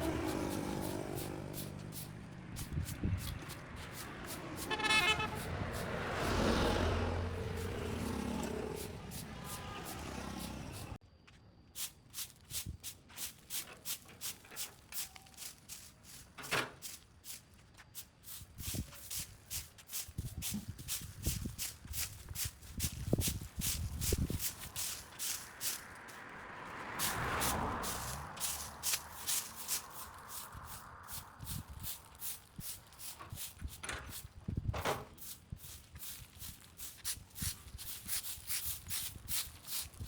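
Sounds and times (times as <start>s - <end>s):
vehicle passing: 0.0s - 11.0s, 23.6s - 33.3s
horn honk: 4.4s - 11.0s.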